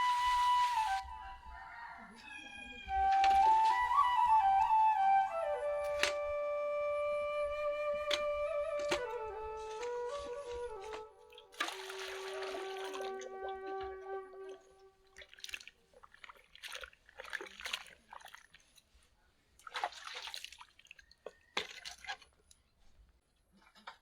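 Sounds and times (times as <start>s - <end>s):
held flute note: 0.0s - 1.4s, 2.8s - 15.0s
water splashing and sloshing: 7.4s - 22.7s.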